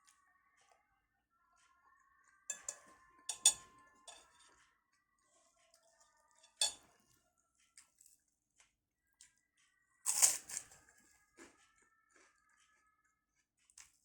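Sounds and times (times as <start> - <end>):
cutlery clinking on a plate: 2.5 - 4.4, 6.4 - 6.9.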